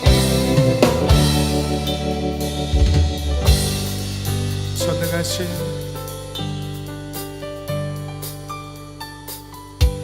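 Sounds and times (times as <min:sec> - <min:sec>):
drum hit: 0:00.0 - 0:01.8, 0:02.6 - 0:05.0
band playing instrumental: 0:00.0 - 0:06.4.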